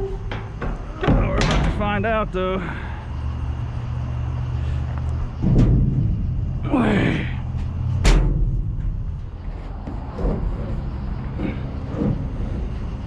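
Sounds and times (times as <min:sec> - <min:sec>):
steady low hum: 0:00.0 - 0:13.0
loud bang: 0:05.3 - 0:09.2
knock on metal dumpster: 0:05.4 - 0:06.7, 0:07.4 - 0:09.0.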